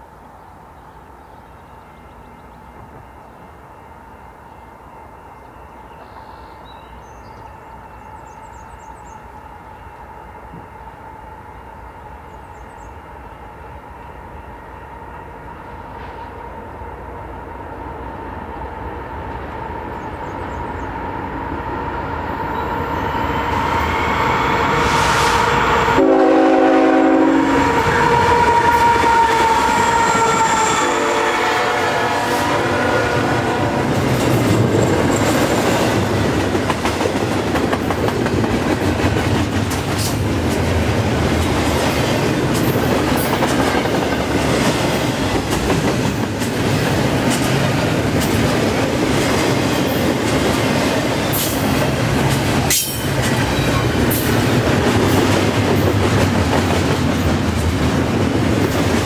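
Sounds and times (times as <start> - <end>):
freight train rumbling: 0.0 - 59.0
rail cars clattering: 18.2 - 59.0
locomotive horn blast: 23.9 - 34.0.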